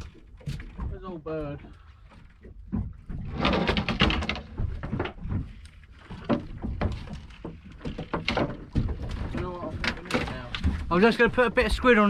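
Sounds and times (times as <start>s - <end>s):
gear knocking in a boat: 0.0s - 12.0s.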